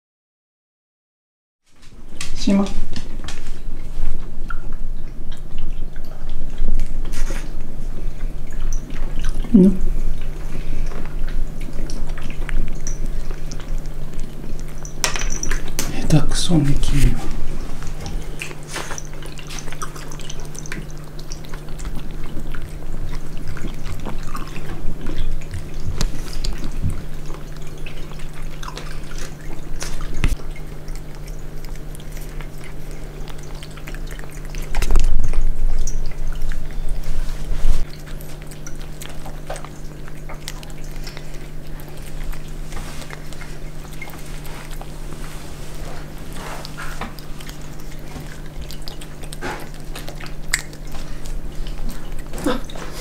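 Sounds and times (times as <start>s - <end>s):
steady low hum: 1.7s - 53.0s
water dripping and trickling: 2.1s - 53.0s.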